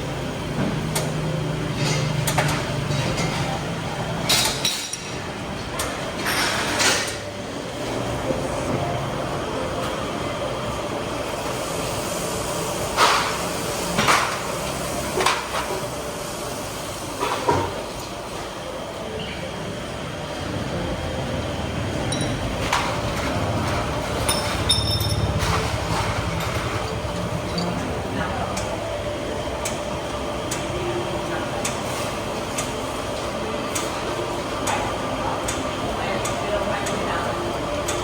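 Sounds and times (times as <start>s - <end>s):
steady background noise: 0.0s - 38.0s
metallic clinks and knocks: 22.1s - 22.6s, 24.2s - 25.6s, 26.8s - 27.8s.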